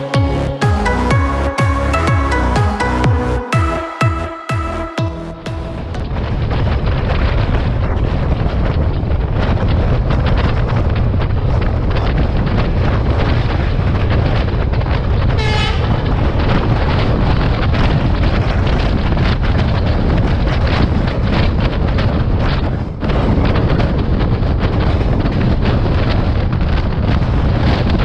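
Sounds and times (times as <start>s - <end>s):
train running rumble: 4.6s - 28.0s
wind on microphone: 5.4s - 28.0s
passing train carriages: 14.3s - 17.1s
train horn toot: 15.4s - 16.0s.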